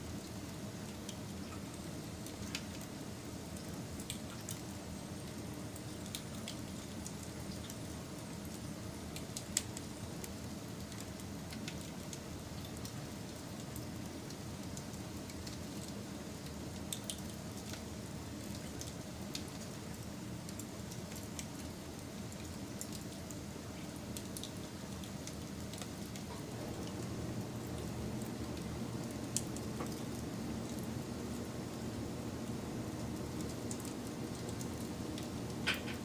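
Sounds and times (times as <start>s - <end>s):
burning wood crackling and popping: 0.2s - 36.0s
campfire flame rushing: 25.4s - 36.0s.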